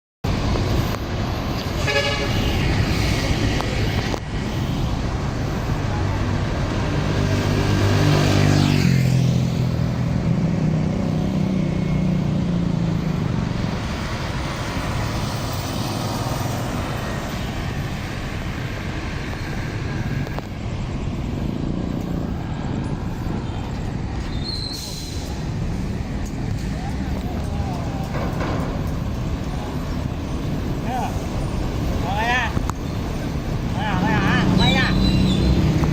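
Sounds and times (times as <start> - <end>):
heavy road traffic rumble: 0.2 - 35.9
vehicle horn: 1.8 - 2.8.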